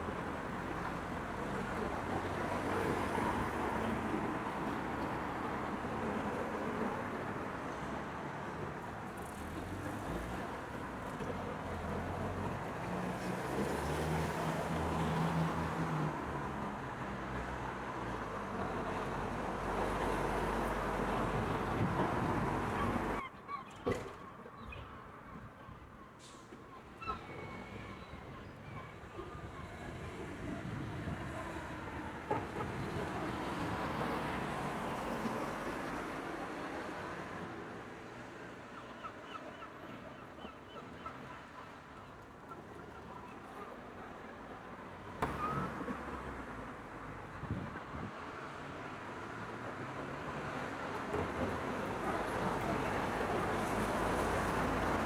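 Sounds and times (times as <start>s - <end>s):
road traffic rumbling: 18.4s - 23.2s, 43.8s - 55.0s.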